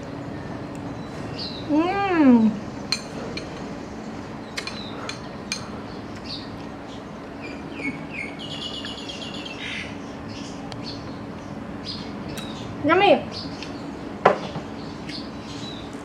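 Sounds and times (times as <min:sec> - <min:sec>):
faint steady hum: 0:00.0 - 0:16.0
small birds chirping: 0:00.0 - 0:16.0
bird trill: 0:07.4 - 0:11.2.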